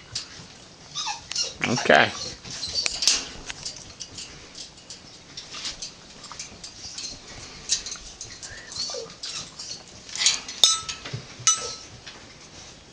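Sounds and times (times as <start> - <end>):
parrot clicks and rustles: 2.4 - 12.2.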